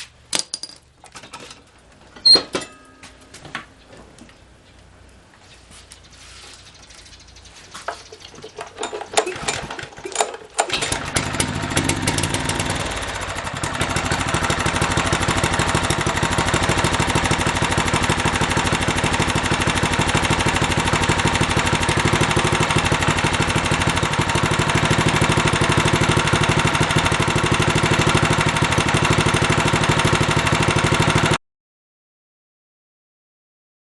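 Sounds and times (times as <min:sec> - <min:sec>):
small engine starting and running: 0:08.0 - 0:31.4.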